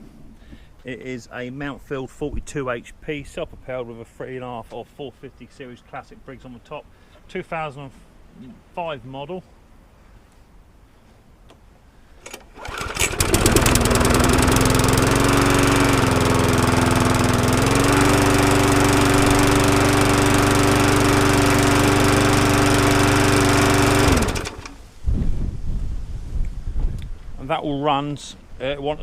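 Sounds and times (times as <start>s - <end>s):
lawn mower engine running: 12.2s - 24.8s.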